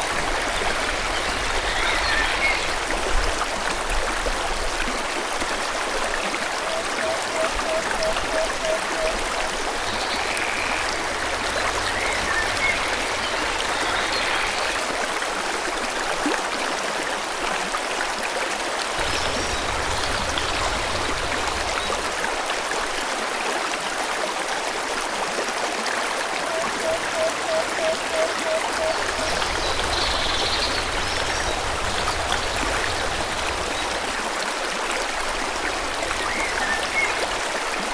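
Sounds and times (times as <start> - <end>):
stream water flowing: 0.0 - 37.9
birds chirping: 19.0 - 22.0, 27.0 - 34.0.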